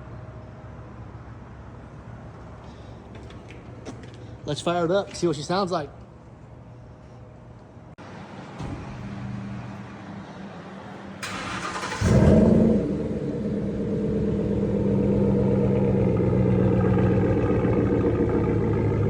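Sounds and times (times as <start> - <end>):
car engine revving and idling: 10.5 - 19.0
engine starter cranking: 11.2 - 12.6.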